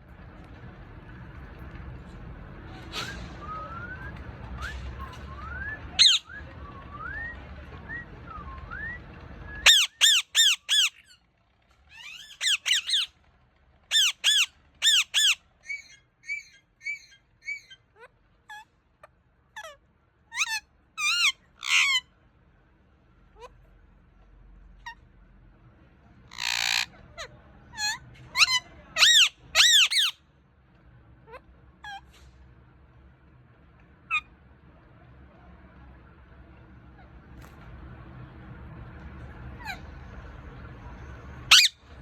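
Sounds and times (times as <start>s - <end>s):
parrot whistling: 4.6s - 7.3s, 8.7s - 11.0s, 26.4s - 26.9s, 41.5s - 41.8s
parrot chirps: 6.0s - 6.3s, 9.6s - 11.2s, 11.9s - 13.1s, 13.9s - 18.6s, 19.6s - 22.0s, 26.3s - 30.2s, 34.1s - 34.3s, 41.5s - 42.0s
parrot squawking: 6.0s - 6.3s, 9.6s - 11.2s, 11.9s - 13.1s, 13.9s - 18.7s, 19.6s - 22.0s, 26.3s - 30.2s, 39.6s - 39.9s, 41.5s - 41.8s.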